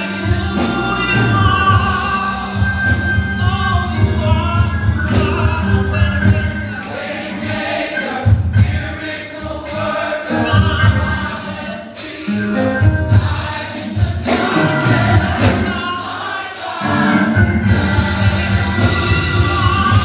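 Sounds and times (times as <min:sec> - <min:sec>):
bass line: 0:00.0 - 0:06.8, 0:16.8 - 0:20.0
drum beats: 0:00.0 - 0:20.0
gospel choir singing: 0:00.0 - 0:20.0.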